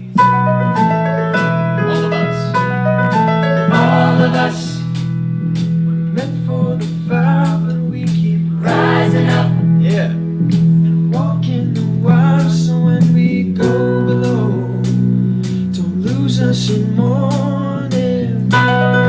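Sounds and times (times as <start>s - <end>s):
person singing: 1.8s - 2.6s, 3.7s - 4.9s, 7.5s - 9.7s.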